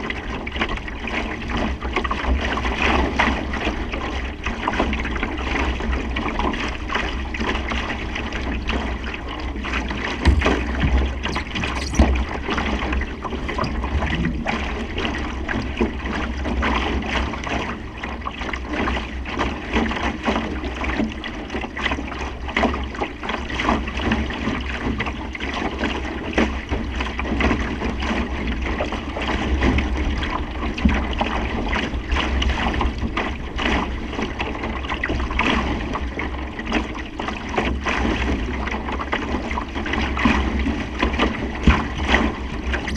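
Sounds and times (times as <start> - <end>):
water splashing against hull: 0.0 - 42.9
loud thumps: 10.2 - 12.4.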